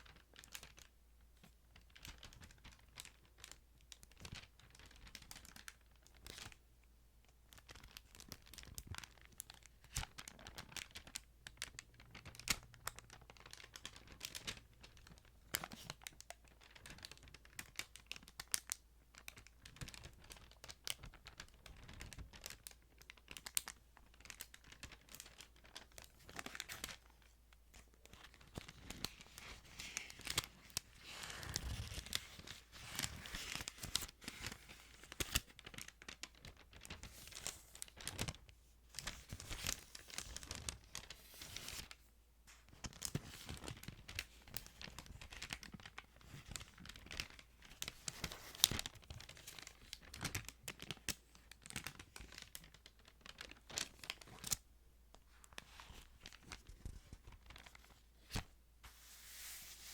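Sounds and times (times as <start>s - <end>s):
paper pages rustling: 23.5s - 54.6s, 55.3s - 59.9s.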